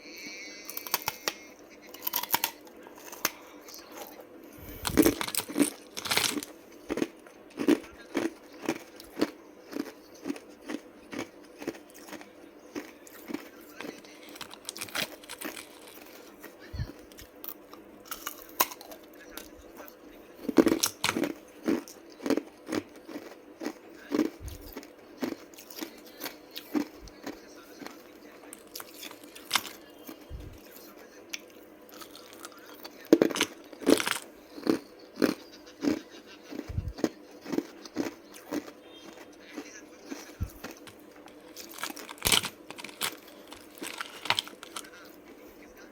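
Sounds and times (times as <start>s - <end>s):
person biting and chewing ice: 0.7s - 17.3s, 18.0s - 19.5s, 20.5s - 27.9s, 31.9s - 39.2s, 40.1s - 44.9s.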